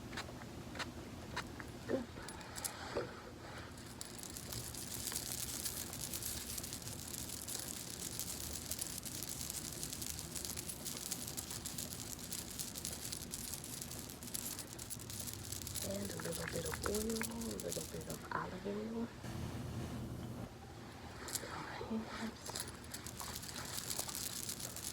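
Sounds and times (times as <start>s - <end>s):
hands rubbing hair: 3.9s - 18.3s.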